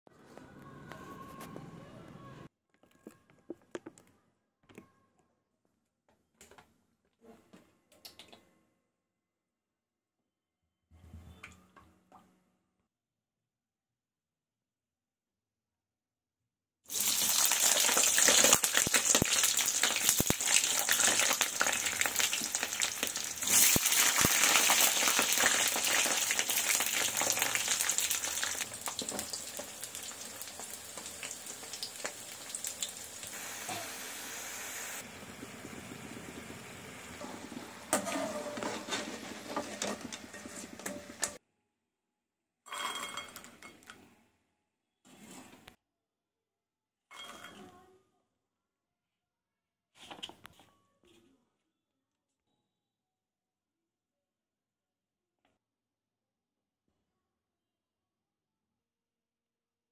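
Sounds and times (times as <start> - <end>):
potatoes sizzling in hot oil: 16.9 - 41.4.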